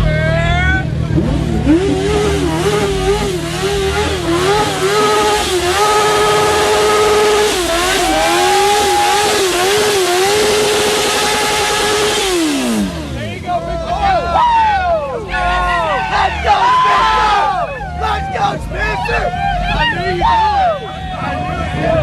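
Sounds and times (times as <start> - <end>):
car engine revving hard: 0.9 - 14.7.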